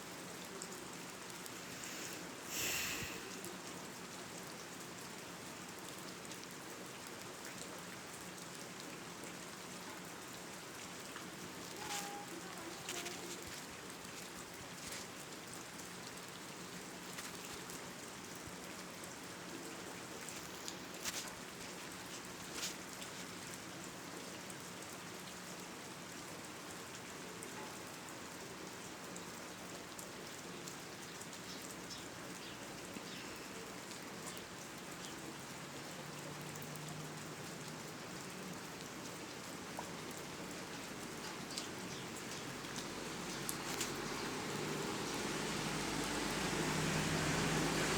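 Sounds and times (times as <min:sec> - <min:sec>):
steady hiss: 0:01.3 - 0:03.6.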